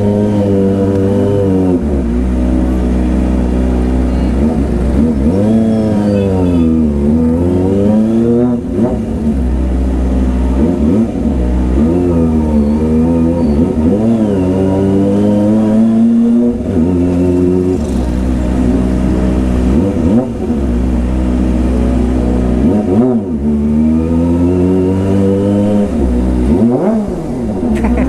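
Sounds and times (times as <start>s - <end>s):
motorcycle engine revving: 0.0s - 28.0s
steady low rumble: 16.6s - 22.6s, 25.8s - 28.0s.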